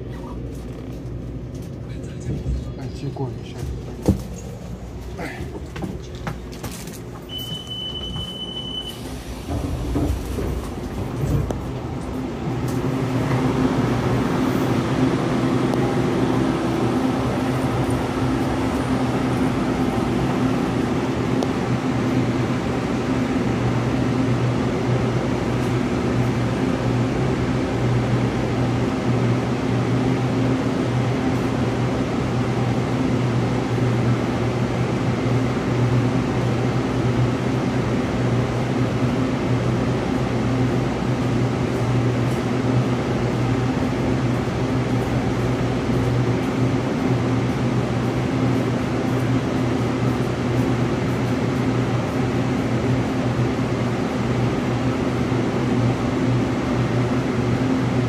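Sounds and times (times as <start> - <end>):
train hum and drone: 0.0 - 58.0
high electronic beep: 7.3 - 9.0.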